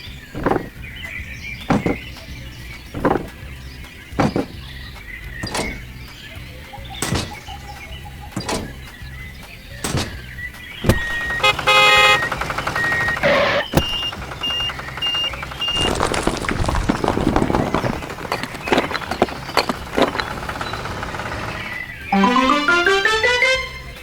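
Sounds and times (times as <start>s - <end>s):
sharp knock: 7.0s - 7.5s, 9.8s - 10.3s
burst of electronic tones: 22.2s - 24.0s.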